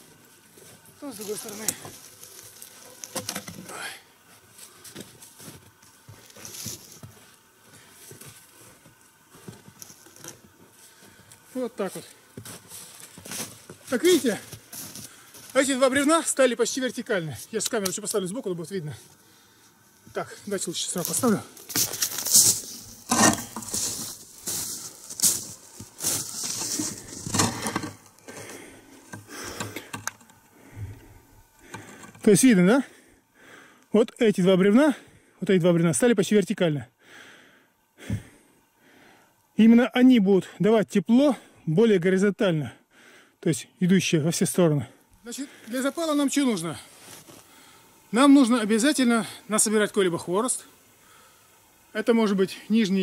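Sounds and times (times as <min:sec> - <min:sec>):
rustling handling noise: 0:00.0 - 0:16.0, 0:17.5 - 0:32.3, 0:45.5 - 0:48.2
crunching footsteps: 0:00.0 - 0:16.3, 0:17.3 - 0:32.2, 0:45.2 - 0:48.6.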